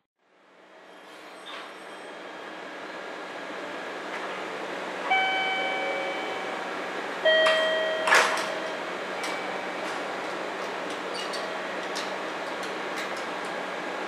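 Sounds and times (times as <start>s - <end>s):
short ringing tones: 7.3s - 9.7s.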